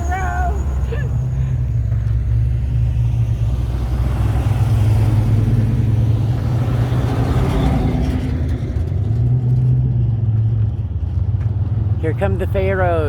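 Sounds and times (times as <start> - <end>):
car passing by: 0.0 - 9.8
car engines rumbling: 0.0 - 13.0.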